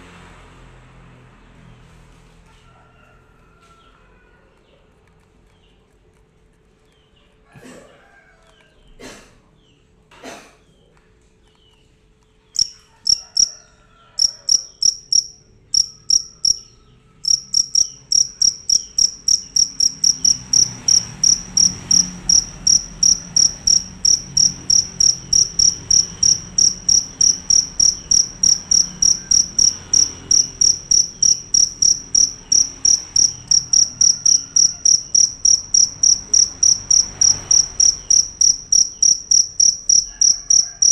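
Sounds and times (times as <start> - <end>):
cricket chirping: 12.6 - 40.9.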